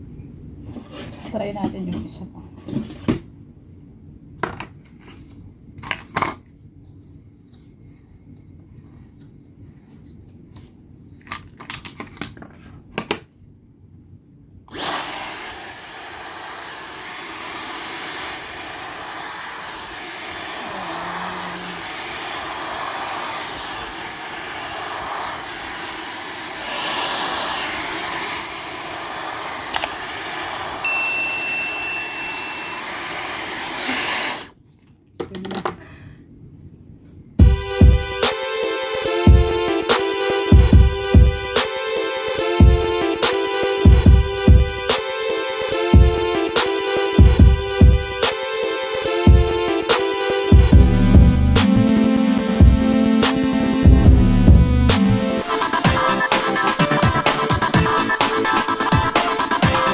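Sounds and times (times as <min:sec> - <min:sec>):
hair dryer blowing: 0:14.7 - 0:34.5, 0:37.4 - 0:57.8.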